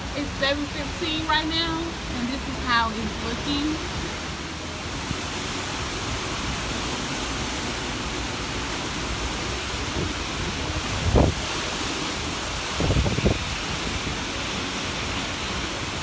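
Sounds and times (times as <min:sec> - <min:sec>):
wind buffeting microphone: 0:00.0 - 0:16.0
wind rushing: 0:08.9 - 0:14.4.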